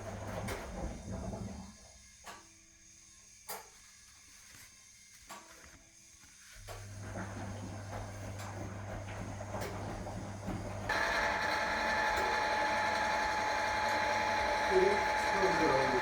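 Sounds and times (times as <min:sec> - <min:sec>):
washing machine running: 0:00.0 - 0:02.4, 0:06.4 - 0:16.0.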